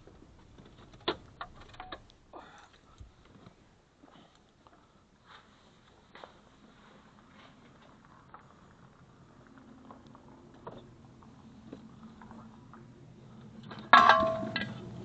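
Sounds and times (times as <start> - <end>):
loud metallic clank: 13.9 - 14.8.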